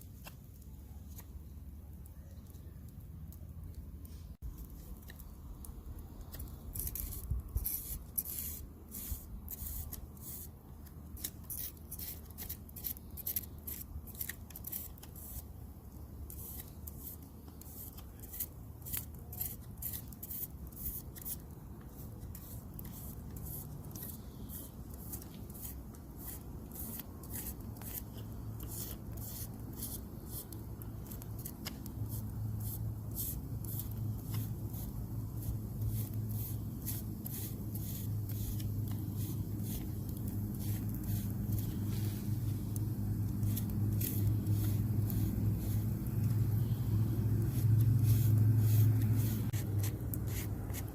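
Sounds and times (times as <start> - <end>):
knife shaving wood: 6.2 - 50.9.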